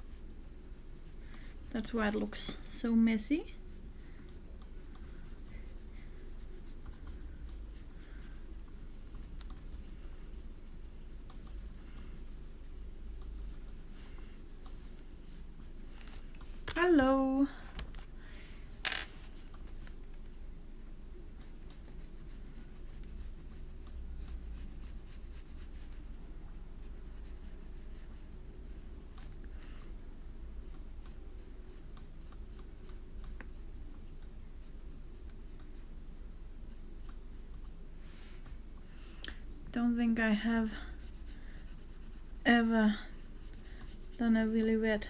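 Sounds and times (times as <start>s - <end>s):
low steady hum: 0.0s - 45.0s
paintbrush swishing on paper: 4.8s - 16.6s
paintbrush scrubbing on paper: 40.9s - 42.4s.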